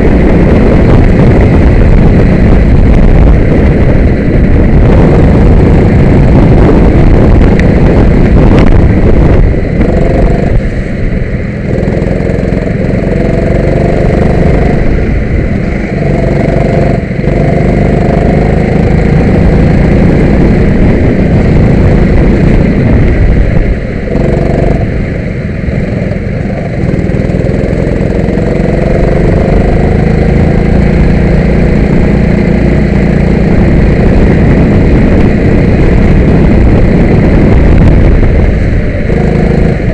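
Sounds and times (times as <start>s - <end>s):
go-kart engine accelerating: 39.0s - 39.9s.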